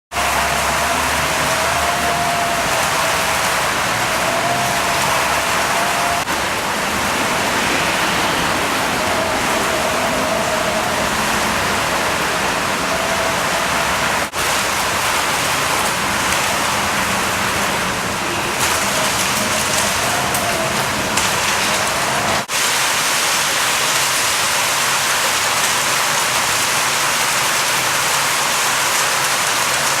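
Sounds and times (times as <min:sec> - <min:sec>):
heavy rain pouring: 0:00.1 - 0:30.0.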